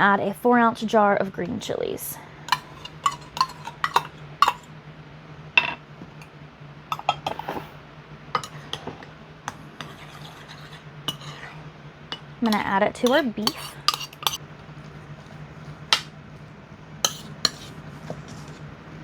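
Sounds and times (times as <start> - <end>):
steady low hum: 0.0 - 19.0
metal spoon scraping a dish: 2.5 - 4.7, 6.9 - 7.8, 8.4 - 14.4, 17.0 - 18.7.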